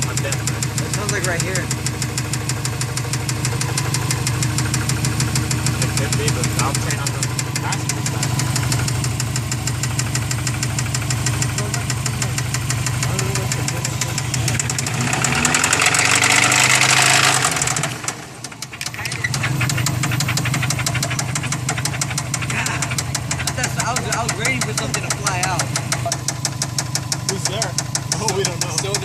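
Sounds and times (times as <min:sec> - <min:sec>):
car engine ticking knock: 0:00.0 - 0:29.0
engine revving with rushing hiss: 0:11.3 - 0:18.6.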